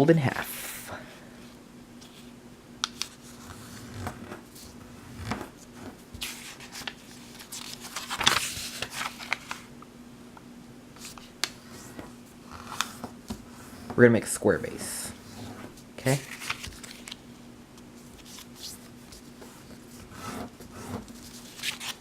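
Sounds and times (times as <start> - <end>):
faint steady hum: 0.0 - 22.0
paper rustling and crinkling: 3.0 - 9.7, 14.8 - 17.2, 18.0 - 22.0.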